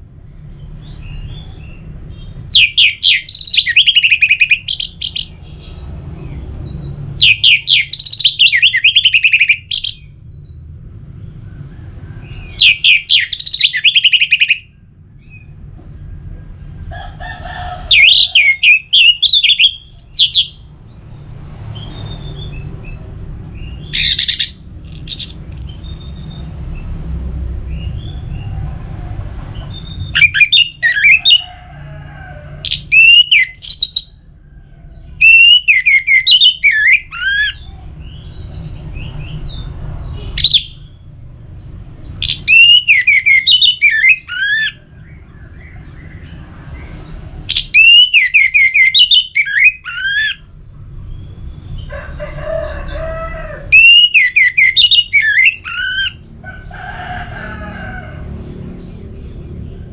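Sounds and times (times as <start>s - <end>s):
low steady rumble: 9.0s - 13.8s.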